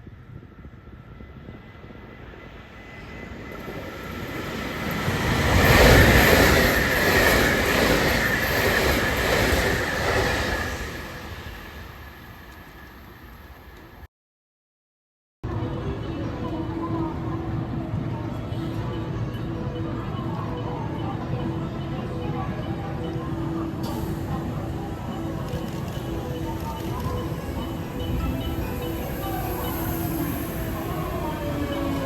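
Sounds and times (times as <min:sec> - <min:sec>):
electric train passing: 0:00.0 - 0:14.1, 0:15.7 - 0:32.0
wheel and rail noise: 0:01.0 - 0:14.1, 0:21.8 - 0:32.0.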